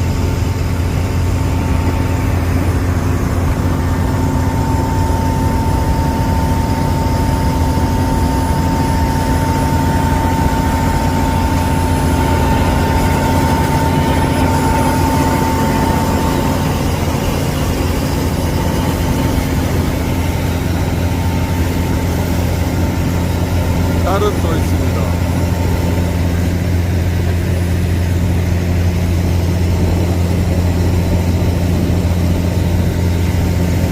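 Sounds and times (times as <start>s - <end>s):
heavy engine droning: 0.0s - 33.9s
thin steady whine: 0.0s - 33.9s.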